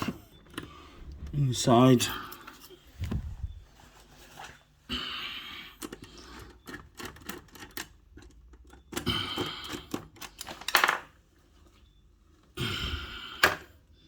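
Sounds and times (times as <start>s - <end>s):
metal and plastic clicks and scraping: 5.8s - 11.2s.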